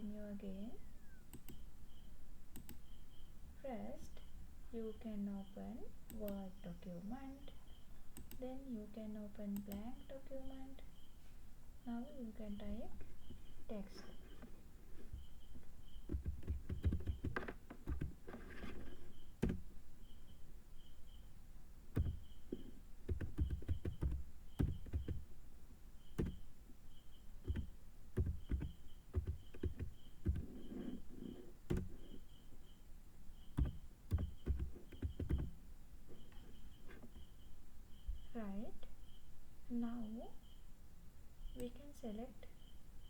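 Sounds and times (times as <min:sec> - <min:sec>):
typing on keyboard: 0:16.0 - 0:19.7, 0:22.0 - 0:25.3, 0:26.2 - 0:26.5, 0:27.4 - 0:31.0, 0:31.7 - 0:32.2, 0:33.5 - 0:35.6.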